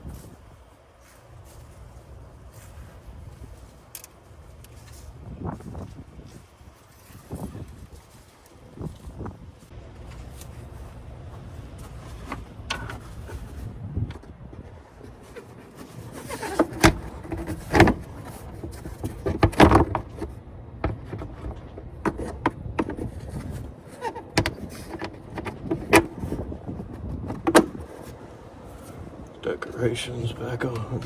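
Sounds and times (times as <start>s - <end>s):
rustling and handling noise: 0.0s - 31.0s
knocks and clunks: 11.7s - 29.4s.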